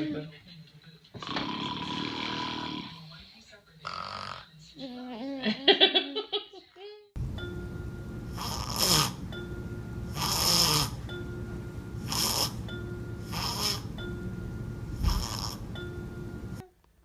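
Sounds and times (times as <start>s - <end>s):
person fake snoring: 1.2s - 3.1s, 3.8s - 4.5s, 8.3s - 9.2s, 10.1s - 11.0s, 12.0s - 12.6s, 13.3s - 13.9s, 15.0s - 15.6s.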